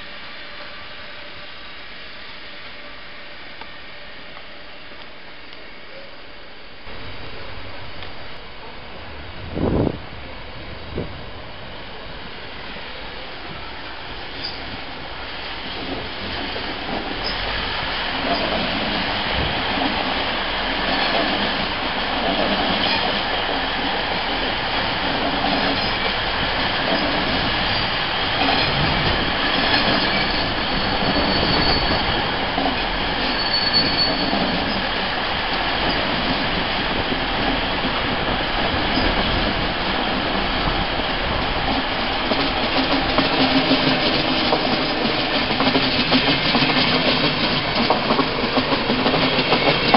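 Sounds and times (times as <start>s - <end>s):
train rolling rumble: 0.0s - 49.9s
wheels clacking over rail joints: 18.1s - 49.9s
high wheel squeal: 29.6s - 35.0s.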